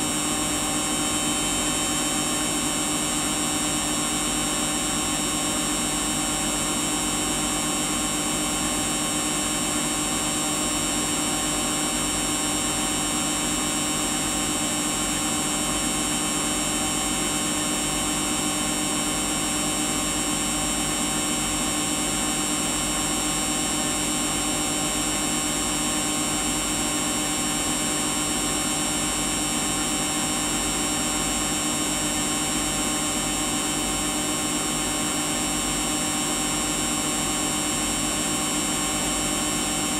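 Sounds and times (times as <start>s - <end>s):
washing machine running: 0.0s - 5.6s.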